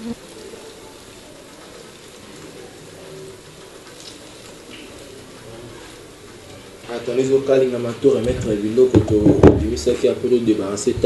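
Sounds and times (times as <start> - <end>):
eggs sizzling in a pan: 0.0 - 5.4
sharp knock: 9.0 - 9.8.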